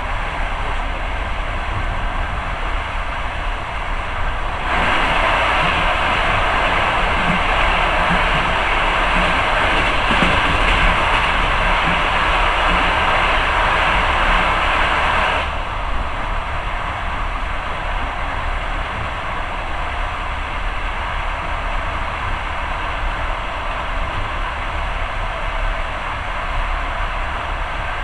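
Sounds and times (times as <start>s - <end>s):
moving train running noise: 0.0s - 28.0s
passing train rushing: 0.0s - 28.0s.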